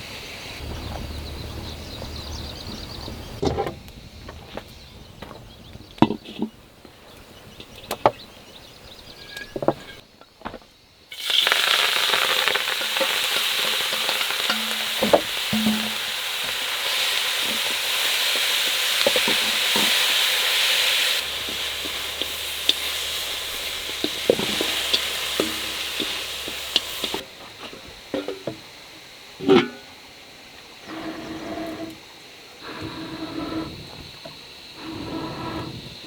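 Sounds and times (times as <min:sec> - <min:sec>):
food sizzling in a pan: 0:11.1 - 0:27.3.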